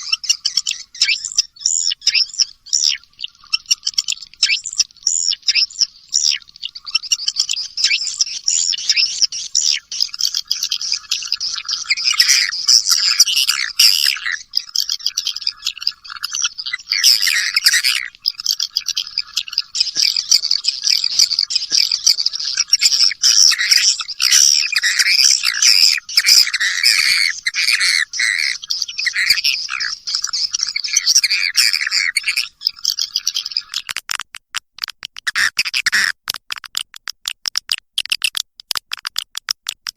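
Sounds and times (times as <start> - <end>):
swiftlets twittering and chirping: 0.0 - 34.0, 35.0 - 36.9
sharp clicks: 32.8 - 39.9.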